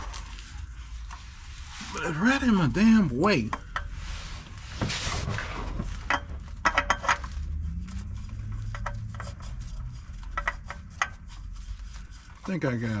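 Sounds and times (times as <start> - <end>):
oil filter clicks and metallic knocks: 3.4 - 4.0, 6.0 - 7.3, 8.4 - 11.4.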